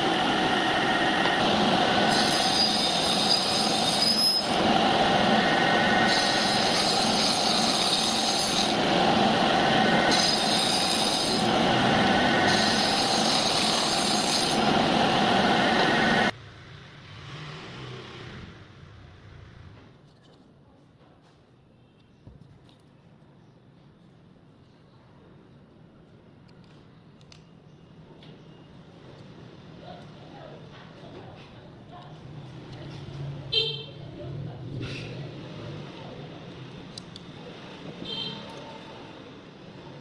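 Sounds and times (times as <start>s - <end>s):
power tool grinding wood: 5.9s - 8.8s, 10.0s - 14.7s.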